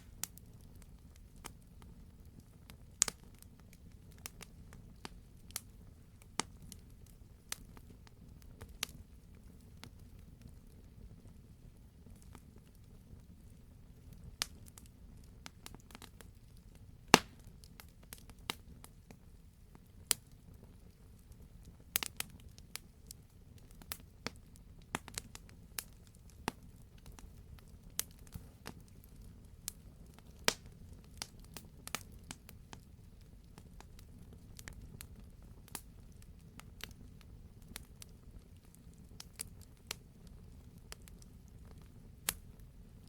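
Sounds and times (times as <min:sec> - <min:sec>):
low rumble of flames: 0:00.0 - 0:43.0
wood fire crackling and popping: 0:00.0 - 0:43.0.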